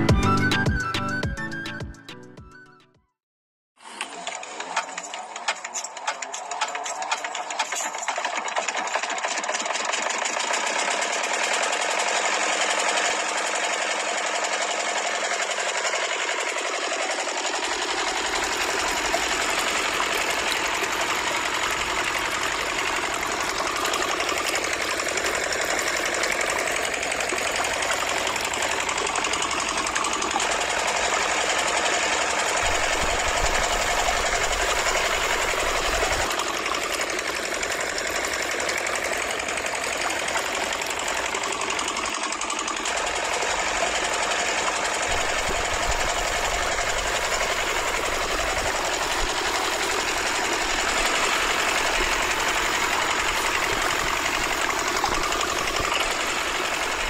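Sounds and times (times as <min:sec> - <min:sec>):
small motor running: 0:03.8 - 0:57.0
water pouring and splashing: 0:17.9 - 0:31.4, 0:45.1 - 0:57.0.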